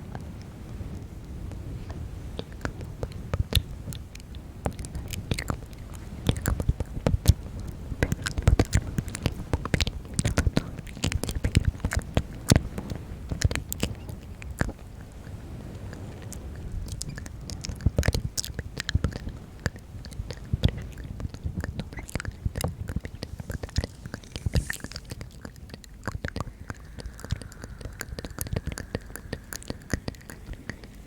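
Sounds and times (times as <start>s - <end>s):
wet mouth clicks and smacks: 3.0s - 12.7s, 16.8s - 31.0s
low rumble: 21.8s - 31.0s.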